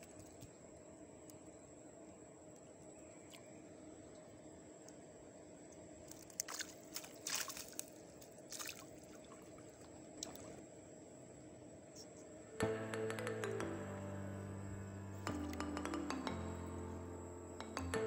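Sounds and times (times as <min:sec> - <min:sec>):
faint steady hum: 0:00.0 - 0:18.0
water splashing and trickling: 0:06.0 - 0:10.6.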